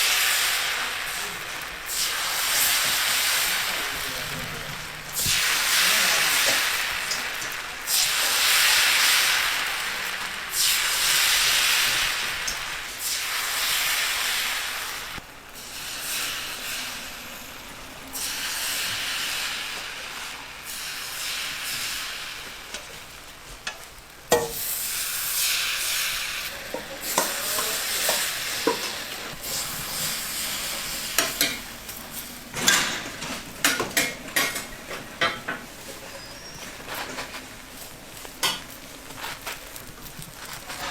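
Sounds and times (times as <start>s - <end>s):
food frying and sizzling: 0.0s - 40.9s
metal utensils scraping cooking surface: 23.8s - 39.4s, 40.6s - 40.9s.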